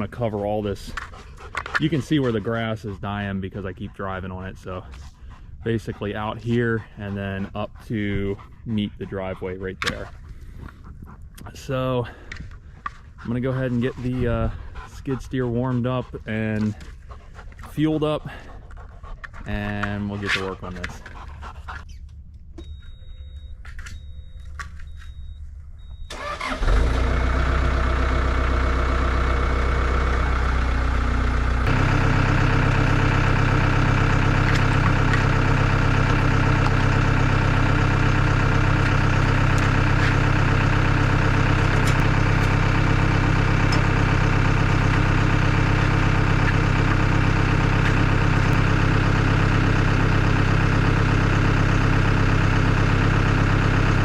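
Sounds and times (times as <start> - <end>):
diesel engine starting and idling: 0.0 - 10.8, 11.4 - 18.6, 19.4 - 54.0
short electronic beeps: 22.6 - 26.2.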